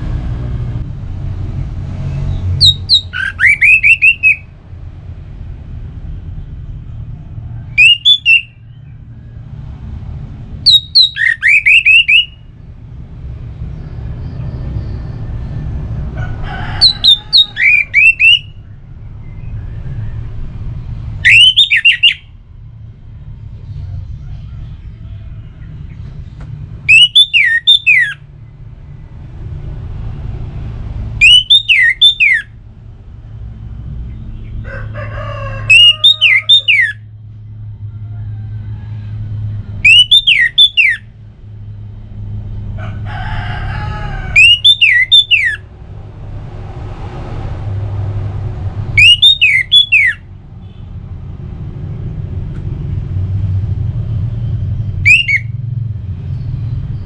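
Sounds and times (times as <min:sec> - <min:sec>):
thrush whistled song: 0:02.3 - 0:04.5, 0:07.7 - 0:08.9, 0:10.6 - 0:12.5, 0:16.8 - 0:20.1, 0:21.1 - 0:22.4, 0:26.8 - 0:28.2, 0:31.2 - 0:32.6, 0:35.7 - 0:37.1, 0:39.7 - 0:41.1, 0:44.4 - 0:45.7, 0:48.9 - 0:50.8, 0:54.4 - 0:55.7.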